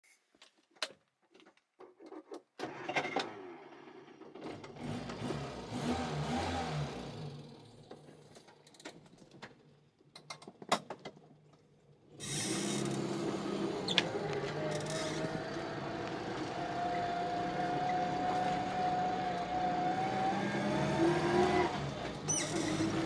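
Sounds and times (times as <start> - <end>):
car engine cranking and idling: 2.6 - 9.9, 12.2 - 23.0.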